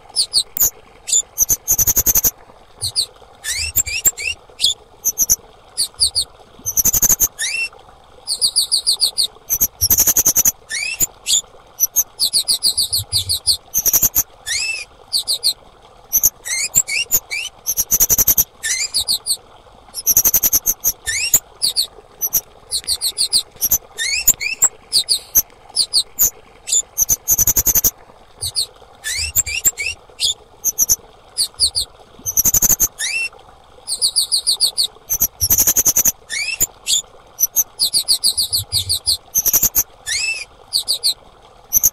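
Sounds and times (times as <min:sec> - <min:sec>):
high rising bird chirps: 0:00.2 - 0:07.7, 0:08.3 - 0:19.4, 0:20.0 - 0:33.3.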